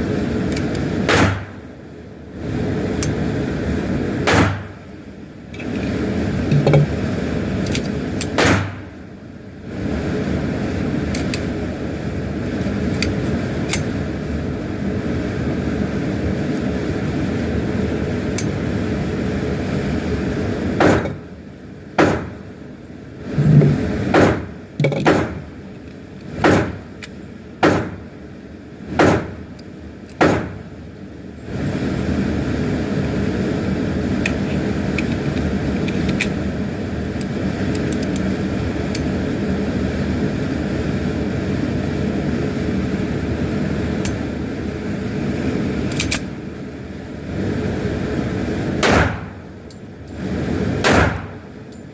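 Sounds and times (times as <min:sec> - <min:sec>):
steady background rush: 0:00.0 - 0:51.9
handgun shots: 0:01.1 - 0:01.6, 0:04.3 - 0:04.7, 0:08.3 - 0:08.8, 0:20.8 - 0:21.1, 0:22.0 - 0:22.3, 0:24.1 - 0:24.4, 0:25.0 - 0:25.4, 0:26.4 - 0:26.8, 0:27.6 - 0:28.0, 0:29.0 - 0:29.4, 0:30.2 - 0:30.6, 0:48.8 - 0:49.4, 0:50.8 - 0:51.4.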